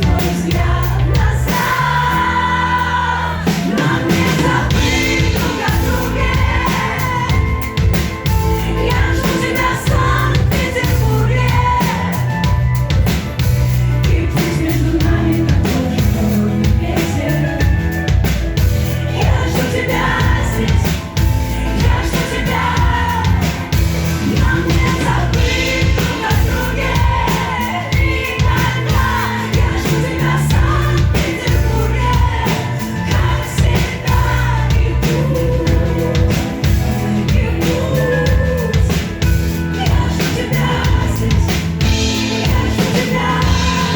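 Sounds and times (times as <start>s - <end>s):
person singing: 0.0s - 43.9s
pop-rock band playing: 0.0s - 43.9s
steady drums: 0.0s - 43.9s.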